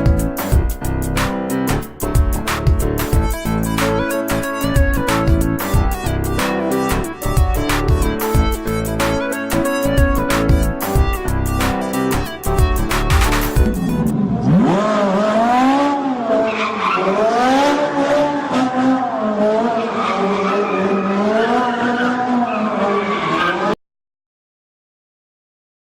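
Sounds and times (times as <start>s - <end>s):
car tyres squealing: 13.2s - 23.8s.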